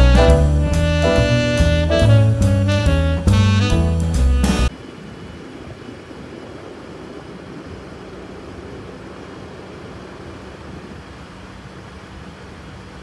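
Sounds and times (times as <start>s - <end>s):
low steady hum: 4.7s - 13.0s.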